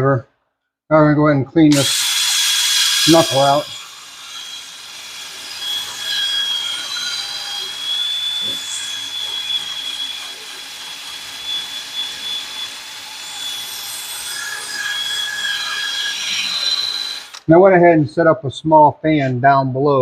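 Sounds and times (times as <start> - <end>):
high-speed power tool grinding: 1.7 - 17.4.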